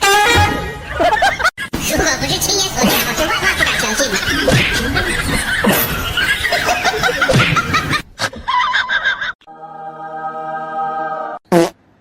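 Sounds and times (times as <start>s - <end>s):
people laughing: 0.7s - 1.7s, 2.8s - 9.4s.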